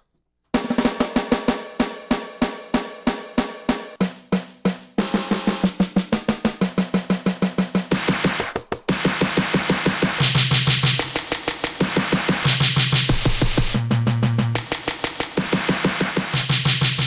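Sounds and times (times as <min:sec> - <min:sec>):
snare and tom hits: 0:00.6 - 0:13.8, 0:14.6 - 0:17.0
cymbals: 0:07.9 - 0:13.8.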